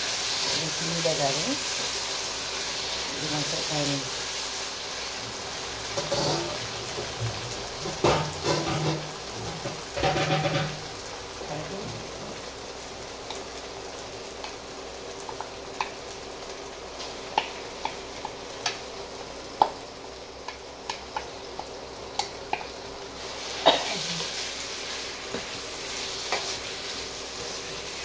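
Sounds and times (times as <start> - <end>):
food sizzling in a wok: 0.0 - 28.0
spatula tapping a pan: 7.0 - 10.9, 15.2 - 16.0, 17.3 - 18.8, 19.6 - 19.8, 20.4 - 22.7, 26.3 - 26.6.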